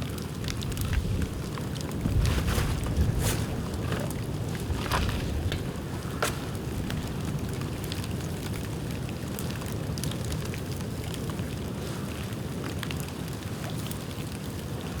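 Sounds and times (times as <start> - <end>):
bamboo crackling and popping: 0.0 - 11.5
low fire rumble: 0.0 - 14.9.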